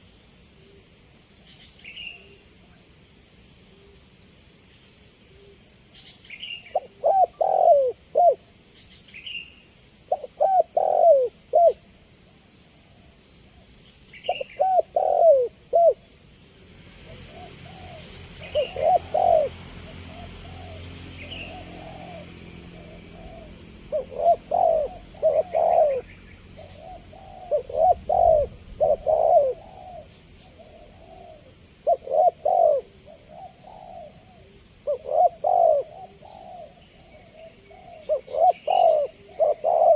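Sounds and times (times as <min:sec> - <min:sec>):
high insect buzz: 0:00.0 - 0:39.9
dove cooing: 0:06.7 - 0:08.4, 0:10.1 - 0:11.8, 0:14.2 - 0:16.1, 0:17.0 - 0:39.9.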